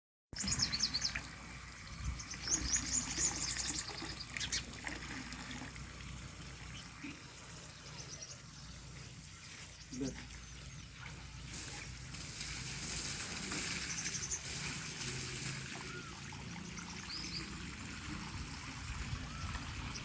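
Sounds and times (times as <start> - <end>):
small birds chirping: 0.4 - 4.7, 6.7 - 11.8.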